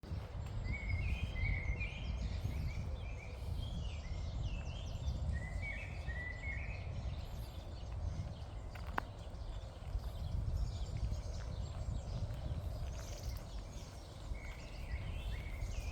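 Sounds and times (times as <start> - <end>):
birds chirping: 0.3 - 15.9.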